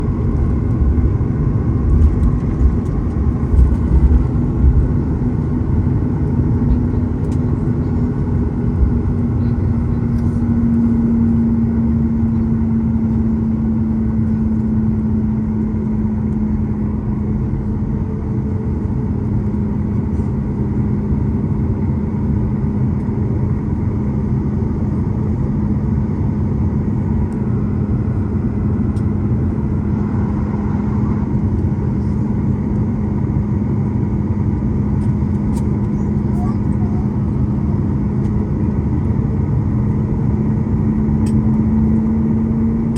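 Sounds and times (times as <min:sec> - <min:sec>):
jet engines droning in cabin: 0:00.0 - 0:42.9
low bumps: 0:01.7 - 0:05.4.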